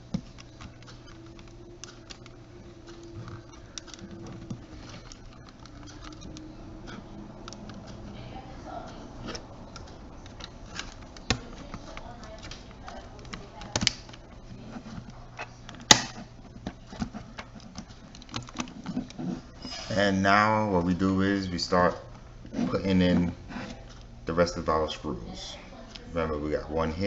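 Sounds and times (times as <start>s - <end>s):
plastic parts clicking: 0.0s - 8.1s, 9.2s - 19.8s
sharp plastic snap: 15.8s - 16.2s.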